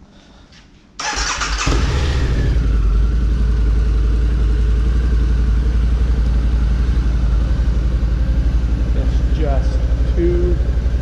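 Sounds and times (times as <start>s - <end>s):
starter motor cranking: 1.0s - 2.0s
motorcycle engine idling: 1.0s - 11.0s.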